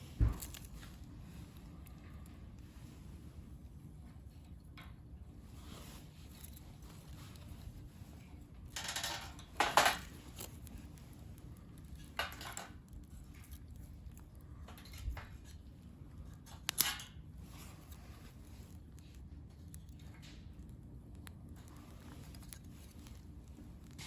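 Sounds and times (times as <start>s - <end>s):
small objects clattering: 8.7s - 10.8s, 11.9s - 13.8s.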